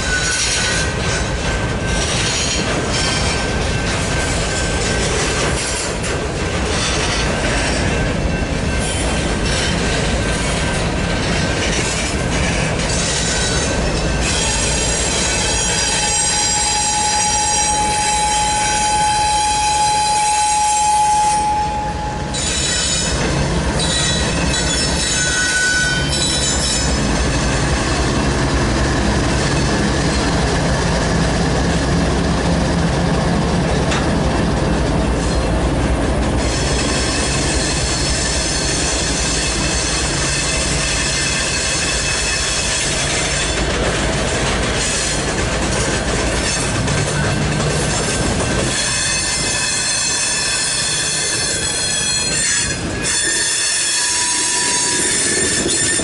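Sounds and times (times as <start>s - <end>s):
wheel flange squeal: 0.0s - 6.0s, 11.2s - 23.2s, 23.8s - 28.0s, 36.4s - 43.6s, 46.4s - 56.0s
diesel locomotive engine hum: 0.0s - 56.0s
rumble of train cars: 0.0s - 56.0s
train wheels on rails: 0.0s - 56.0s.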